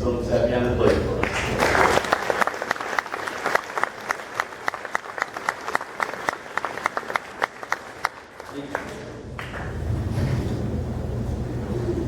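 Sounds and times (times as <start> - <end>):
audience applauding: 1.2 - 9.8.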